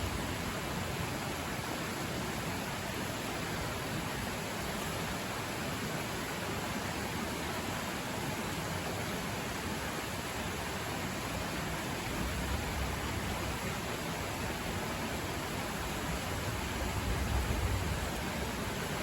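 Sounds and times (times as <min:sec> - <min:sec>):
river rushing: 0:00.0 - 0:19.0.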